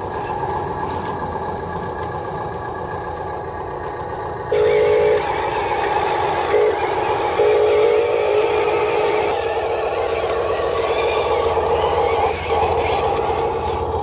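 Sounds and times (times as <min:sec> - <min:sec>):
toy horn toots: 0:04.5 - 0:13.6
toy truck electric motor whirring: 0:04.5 - 0:14.0.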